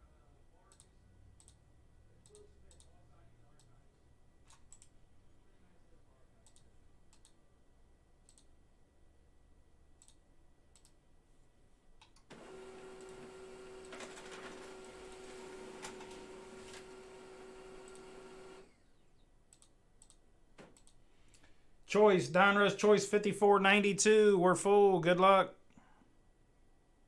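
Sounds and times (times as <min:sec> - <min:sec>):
faint clicks: 0:02.2 - 0:03.0, 0:08.3 - 0:08.5, 0:10.0 - 0:11.0, 0:19.5 - 0:21.6
small machine humming: 0:12.3 - 0:18.9.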